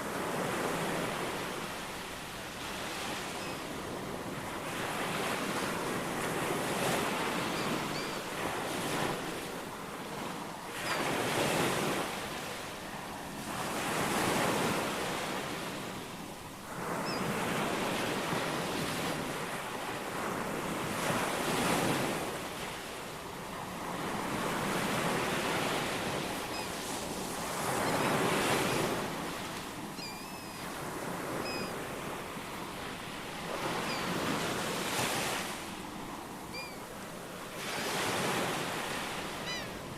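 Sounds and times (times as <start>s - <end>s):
faint bird chirps: 7.4s - 8.3s, 30.0s - 30.7s, 31.4s - 31.8s, 36.5s - 36.8s.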